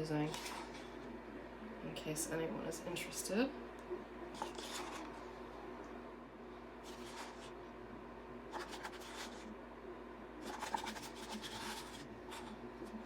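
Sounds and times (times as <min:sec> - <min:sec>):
steady low hum: 0:00.0 - 0:13.0
scraping cups and tools: 0:10.4 - 0:12.6.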